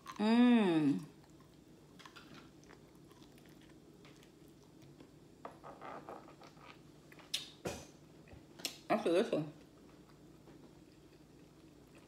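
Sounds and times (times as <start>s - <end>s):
chewing crispy chicken: 0.0s - 5.1s.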